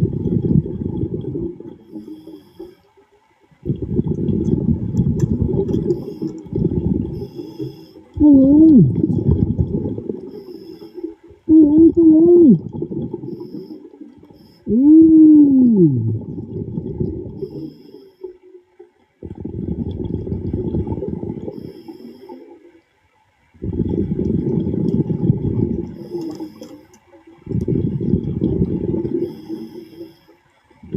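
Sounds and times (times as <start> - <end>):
underwater breathing bubbles: 0.0 - 3.0, 3.6 - 22.9, 23.5 - 30.9
person humming underwater: 8.2 - 10.3, 11.4 - 13.5, 14.6 - 17.4.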